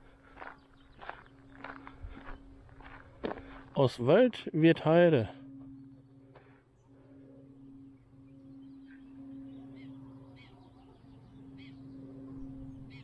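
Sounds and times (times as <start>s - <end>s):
birds chirping: 0.0s - 13.0s
faint low hum: 0.0s - 13.0s.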